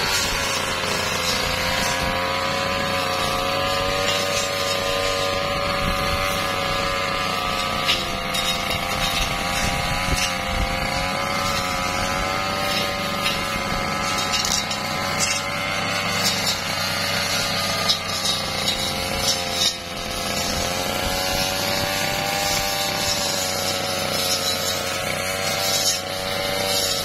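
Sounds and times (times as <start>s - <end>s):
brush cutter engine running: 0.0s - 27.0s.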